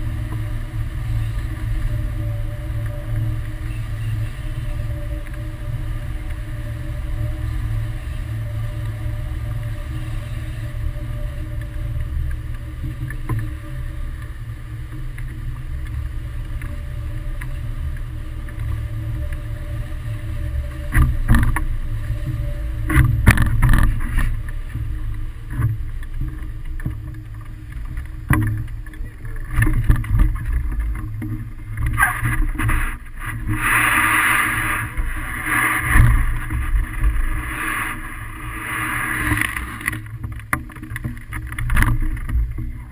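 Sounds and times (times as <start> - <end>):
crackling spikes: 0.0 - 42.9
wind buffeting microphone: 0.0 - 42.9.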